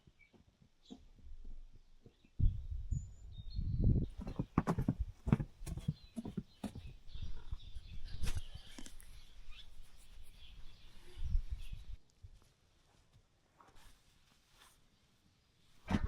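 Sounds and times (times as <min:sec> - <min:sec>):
sharp knocks and dull thumps: 0:04.2 - 0:07.0.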